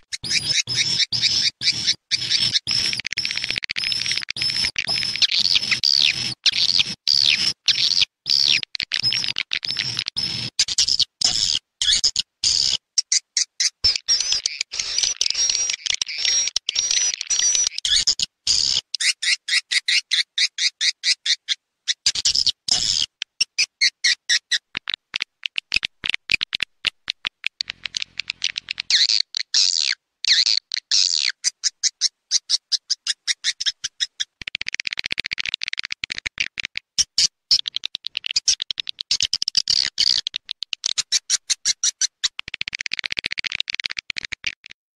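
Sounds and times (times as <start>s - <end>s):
swiftlet chirps and twitters: 0.0s - 20.3s.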